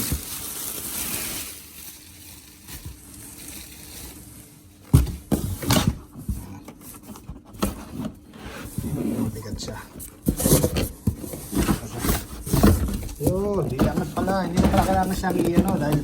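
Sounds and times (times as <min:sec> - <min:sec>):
cardboard packaging rustling: 0:00.0 - 0:16.0
knocks and thumps on cardboard: 0:04.9 - 0:08.1, 0:09.5 - 0:16.0.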